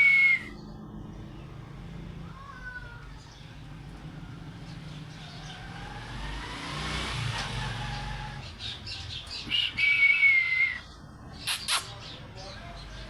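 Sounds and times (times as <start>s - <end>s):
parrot whistling: 0.0s - 0.5s, 9.5s - 10.8s
vehicle-like rising sound: 3.6s - 8.6s.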